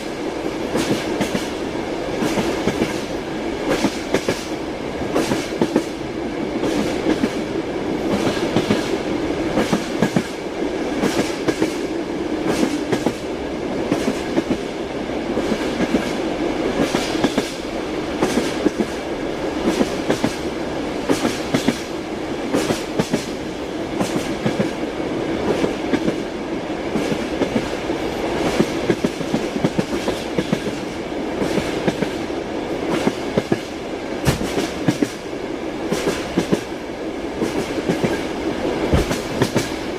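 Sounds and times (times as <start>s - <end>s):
rolling rumble of train: 0.0s - 39.9s
train wheels clacking over rail joints: 0.7s - 1.6s, 2.2s - 3.1s, 3.7s - 6.0s, 9.6s - 10.4s, 11.0s - 13.3s, 21.1s - 21.9s, 24.0s - 24.8s, 28.4s - 32.2s, 32.9s - 35.2s, 35.9s - 36.7s, 38.9s - 39.8s.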